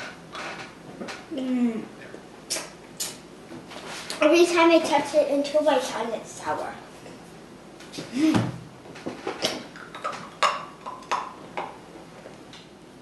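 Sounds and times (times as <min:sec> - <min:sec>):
person low vocal sound: 0:01.3 - 0:02.0, 0:08.1 - 0:08.6.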